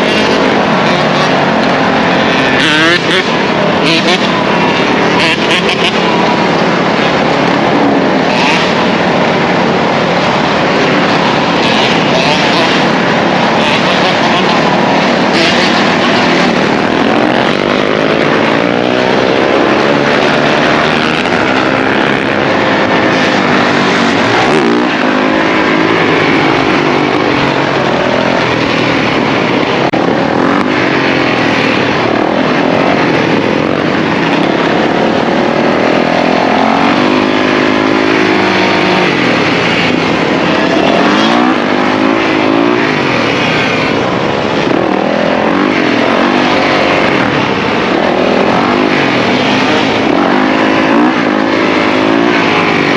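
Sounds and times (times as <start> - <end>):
dirt bike engines revving: 0.0 - 52.9.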